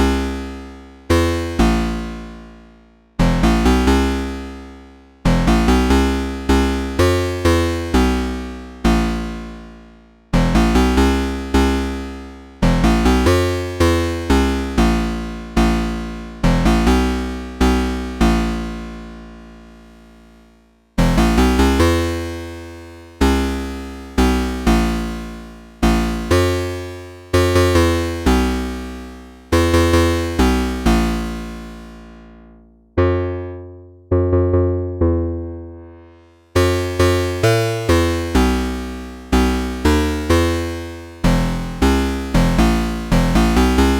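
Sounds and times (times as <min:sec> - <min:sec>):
synthesizer plucked notes: 0:10.4 - 0:19.1, 0:21.0 - 0:22.2, 0:27.6 - 0:43.9
low synthesizer bass note: 0:41.2 - 0:43.9.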